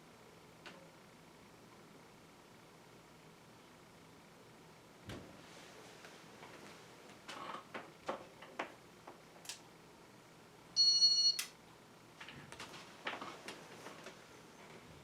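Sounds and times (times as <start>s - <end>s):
electronic beep: 10.8s - 11.4s.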